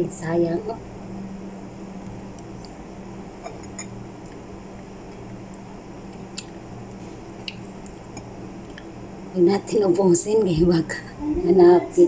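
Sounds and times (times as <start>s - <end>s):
steady low hum: 0.0s - 12.0s
wet squishing chewing: 5.1s - 8.9s.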